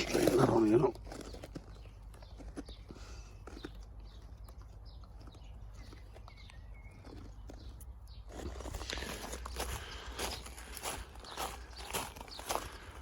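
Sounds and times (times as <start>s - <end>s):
faint footsteps: 5.2s - 13.0s.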